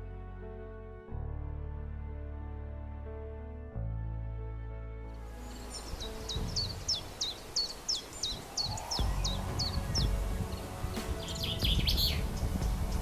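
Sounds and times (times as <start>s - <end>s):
low rumbling noise: 0.0s - 13.0s
songbird chirping: 5.1s - 13.0s.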